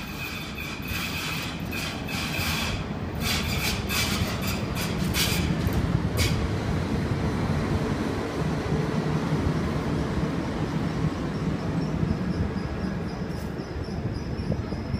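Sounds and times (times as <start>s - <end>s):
train brakes squealing: 0.0s - 6.4s
train rumble: 0.0s - 14.9s.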